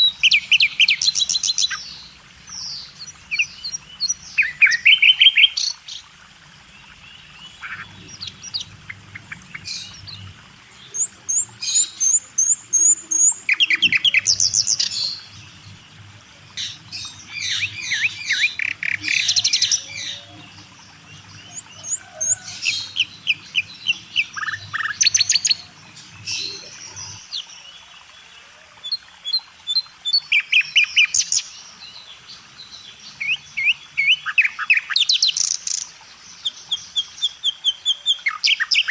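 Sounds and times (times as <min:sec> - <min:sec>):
small birds chirping: 0:06.7 - 0:27.8.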